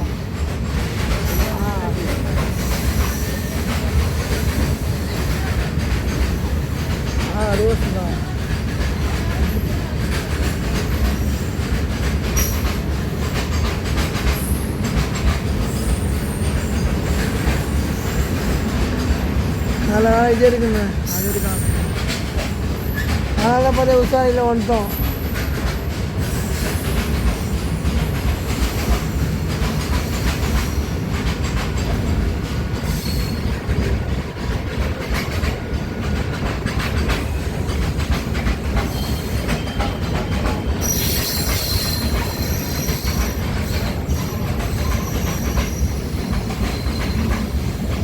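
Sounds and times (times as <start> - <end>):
train wheels clattering on rails: 0.0 - 48.0
high-pitched wheel squeal: 40.8 - 43.4.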